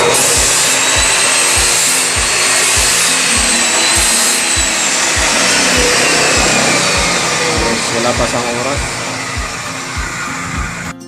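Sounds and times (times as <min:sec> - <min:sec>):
background music with low beat: 0:00.0 - 0:11.0
power tool whining: 0:00.0 - 0:11.0.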